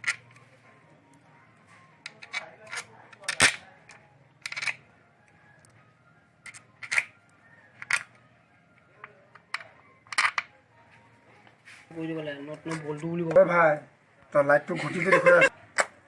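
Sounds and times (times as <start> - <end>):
metallic clicks of tools and nuts: 2.0 - 4.8, 6.4 - 7.2, 7.8 - 8.2.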